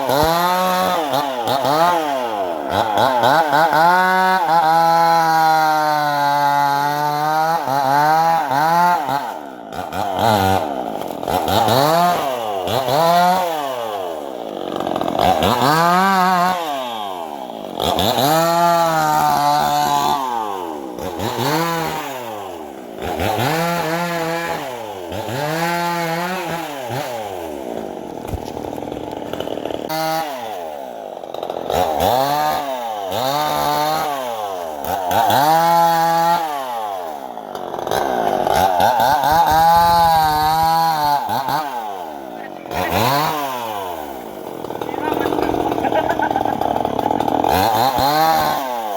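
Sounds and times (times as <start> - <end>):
circular saw cutting wood: 7.0 - 48.9.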